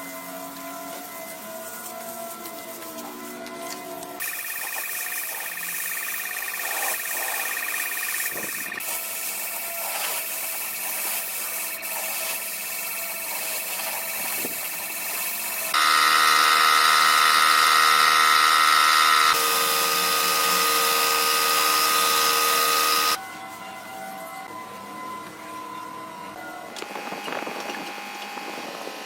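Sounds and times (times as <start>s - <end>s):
electric power tool motor running: 12.5s - 23.2s.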